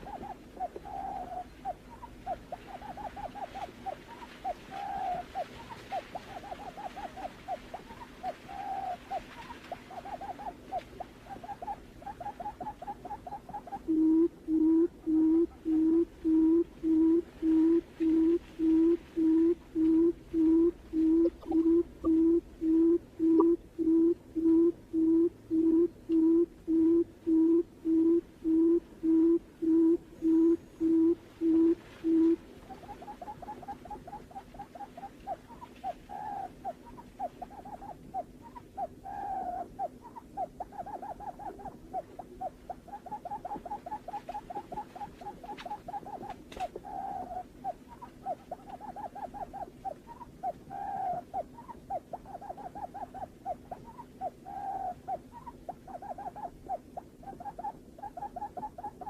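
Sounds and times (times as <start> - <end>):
bird short hooting calls: 0.0 - 9.2
bird hooting call: 0.0 - 59.0.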